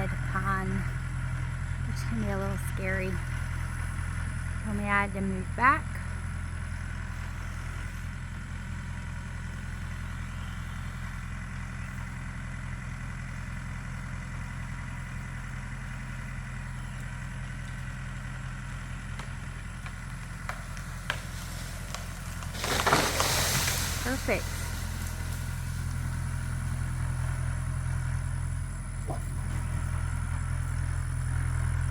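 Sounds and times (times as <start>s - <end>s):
tractor engine running: 0.0s - 31.9s
tree cracking: 17.0s - 28.1s
tree crashing down: 17.5s - 27.7s.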